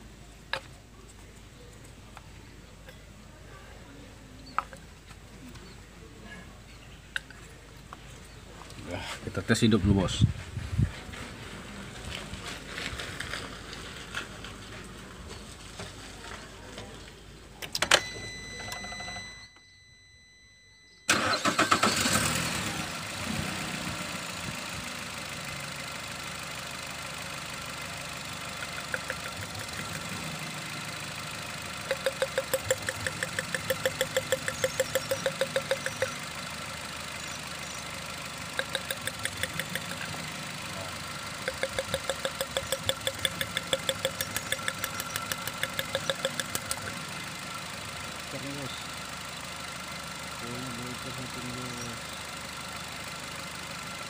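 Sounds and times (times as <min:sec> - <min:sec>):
short beep: 0:17.9 - 0:21.2
car engine starting and idling: 0:21.1 - 0:54.0
sharp rapid ticking: 0:28.6 - 0:30.2, 0:31.8 - 0:36.3, 0:38.5 - 0:40.2, 0:41.3 - 0:46.9.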